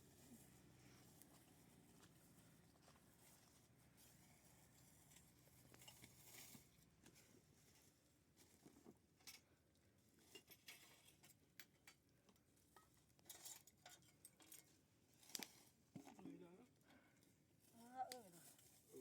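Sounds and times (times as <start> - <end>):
faint scattered clicks and clinks: 10.2 - 15.6.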